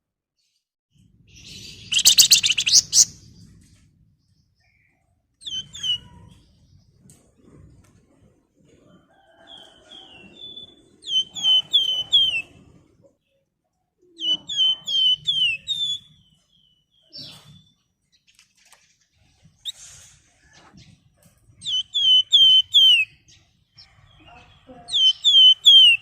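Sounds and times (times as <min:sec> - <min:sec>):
songbird whistling: 0:01.4 - 0:03.2, 0:05.4 - 0:06.2, 0:10.4 - 0:12.5, 0:14.2 - 0:17.7, 0:21.6 - 0:23.2, 0:24.9 - 0:26.0.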